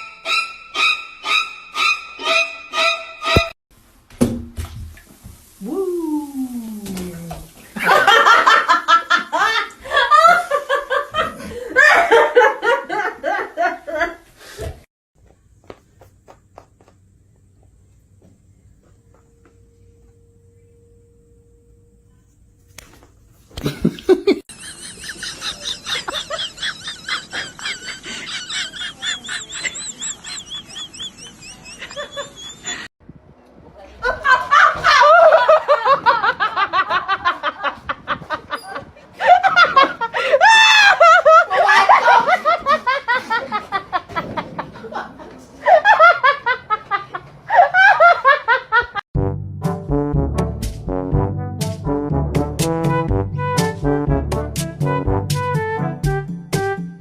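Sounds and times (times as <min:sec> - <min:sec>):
high-pitched laughing: 0:23.6 - 0:32.9, 0:34.0 - 0:44.2
brass music: 0:49.2 - 0:57.0.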